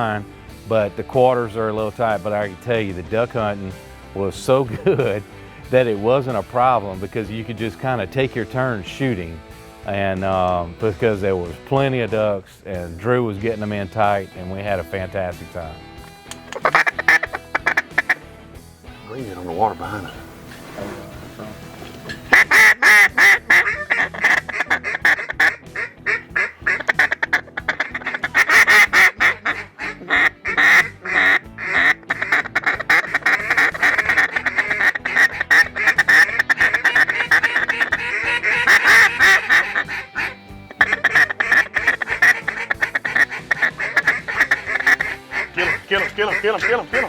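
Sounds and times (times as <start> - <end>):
ducks quacking rapidly: 16.4 - 18.3, 22.2 - 47.0.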